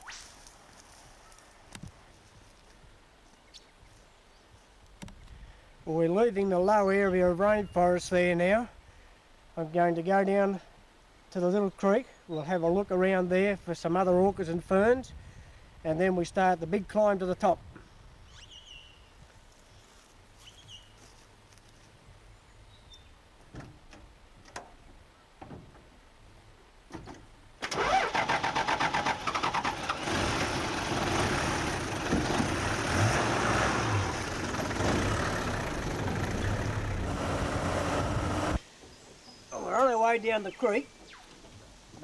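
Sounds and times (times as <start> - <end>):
vehicle engine starting and running: 27.6 - 38.6.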